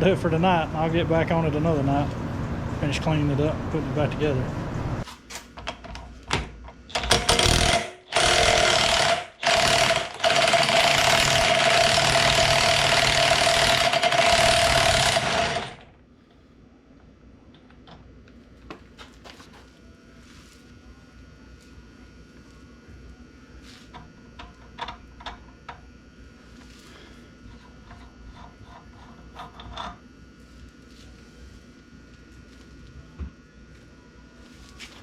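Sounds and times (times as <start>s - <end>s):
power tool whining: 6.9s - 15.9s.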